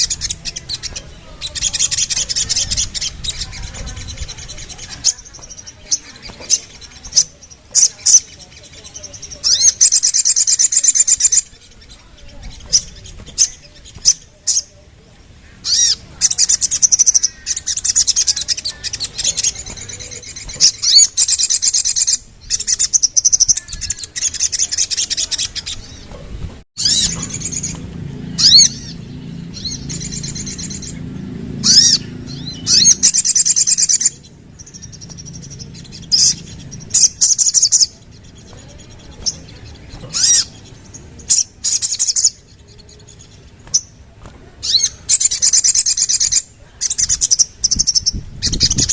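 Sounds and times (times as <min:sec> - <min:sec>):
songbird trilling: 0:00.0 - 0:48.9
sharp bird chirps: 0:26.8 - 0:48.9.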